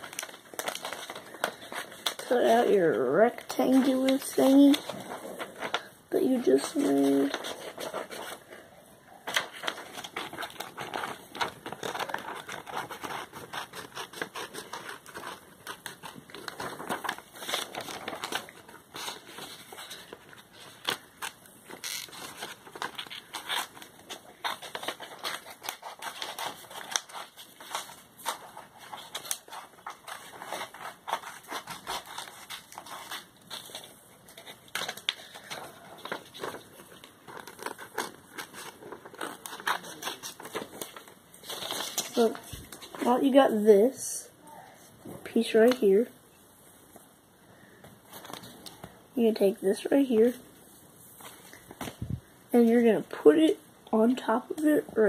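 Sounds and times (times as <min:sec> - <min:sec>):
paper rustling: 0:00.0 - 0:44.0, 0:48.1 - 0:50.4
scissors cutting paper: 0:09.3 - 0:42.4.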